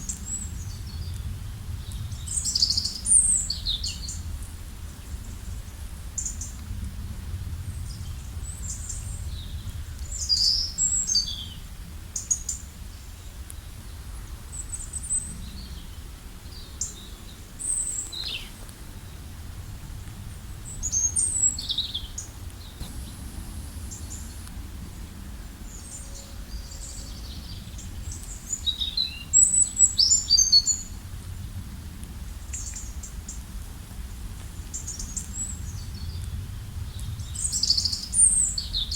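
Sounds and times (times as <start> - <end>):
steady low rumble: 19.0 - 28.7
songbirds chirping and trilling: 20.6 - 31.0.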